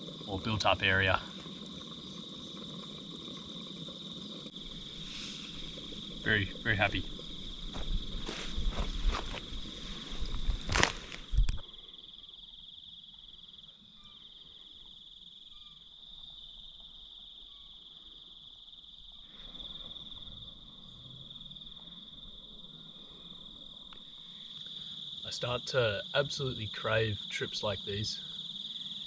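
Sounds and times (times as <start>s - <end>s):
crickets chirping: 0.0s - 29.0s
rustling: 7.9s - 11.6s.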